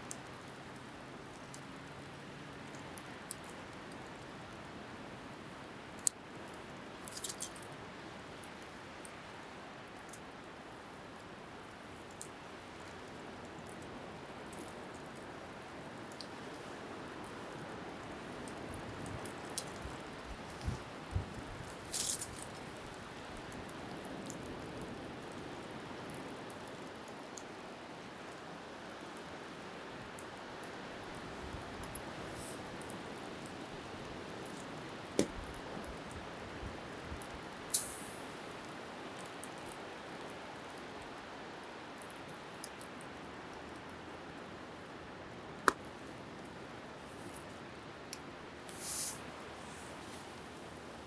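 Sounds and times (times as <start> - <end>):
wood fire crackling: 0.0 - 28.5, 29.4 - 51.0
wind: 0.0 - 51.0
bonfire crackling and popping: 5.8 - 27.6, 37.2 - 39.7.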